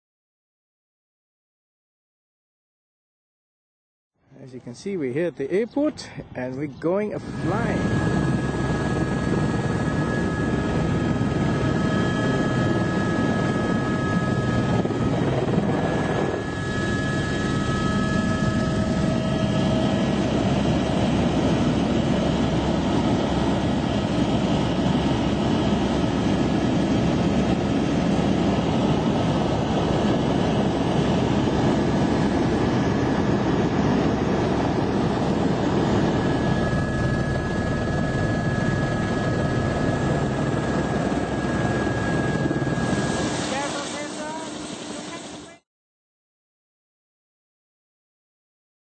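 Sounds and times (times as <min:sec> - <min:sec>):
helicopter engine and rotor: 0:04.6 - 0:45.6
high-pitched whine: 0:05.7 - 0:26.4, 0:35.7 - 0:45.6.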